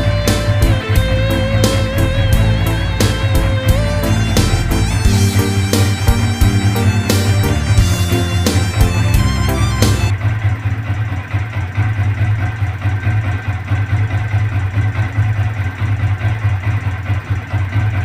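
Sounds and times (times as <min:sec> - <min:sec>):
music: 0:00.0 - 0:10.1
motorcycle engine idling: 0:00.0 - 0:18.0.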